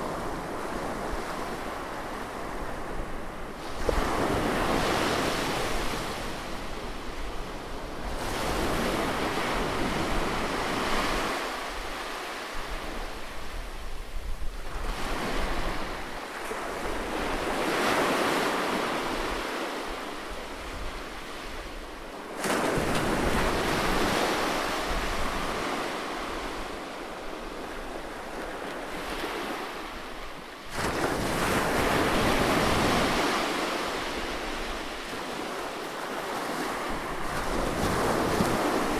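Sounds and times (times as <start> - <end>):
sea waves washing onto shore: 14.6 - 38.9.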